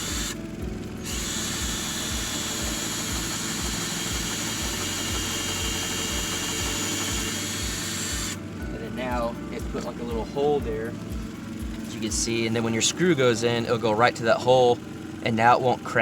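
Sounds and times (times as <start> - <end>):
power drill drilling into wood: 0.0 - 0.4, 1.0 - 8.4.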